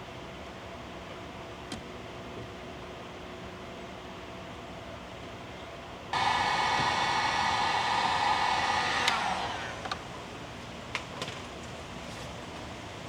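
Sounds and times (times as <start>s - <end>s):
heat gun blowing: 6.2s - 10.1s.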